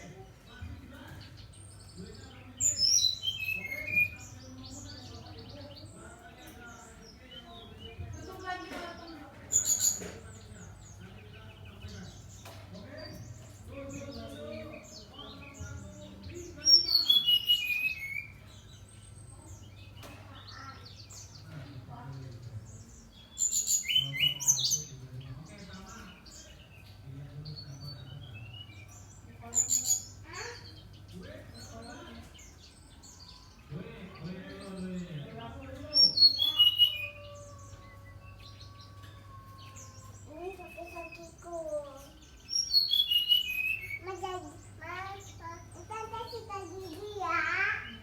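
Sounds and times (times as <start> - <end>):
bird chirps: 0.0 - 48.0
bird whistling song phrase: 36.0 - 41.5, 42.4 - 44.0.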